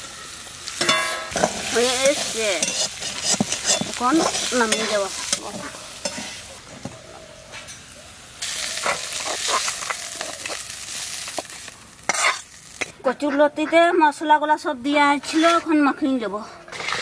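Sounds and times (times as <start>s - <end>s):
soft sizzle: 0.0s - 13.1s
metal spatula scraping a wok: 0.8s - 6.5s, 12.0s - 12.9s.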